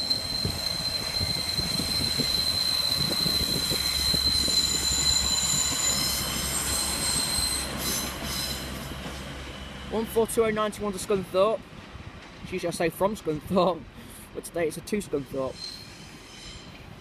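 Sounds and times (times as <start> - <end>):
second higher wheel squeal: 0.0 - 8.8
train wheels squealing: 0.0 - 9.2, 15.4 - 17.0.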